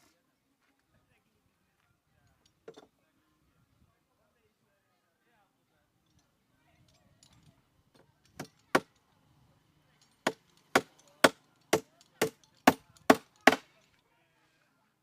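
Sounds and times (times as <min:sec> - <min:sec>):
sharp blows on wood: 0:10.2 - 0:13.7.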